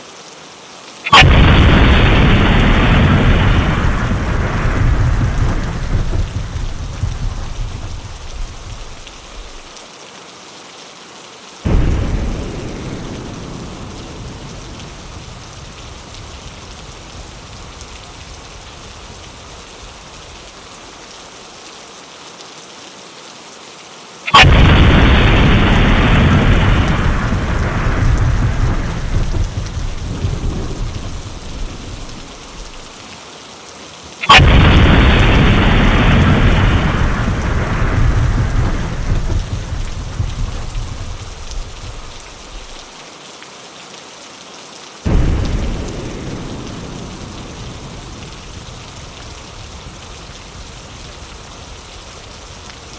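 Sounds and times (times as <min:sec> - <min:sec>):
steady rain: 0:00.0 - 0:52.9
rolling thunder: 0:01.1 - 0:09.7, 0:11.7 - 0:20.4, 0:24.4 - 0:33.0, 0:34.2 - 0:42.8, 0:45.1 - 0:52.9.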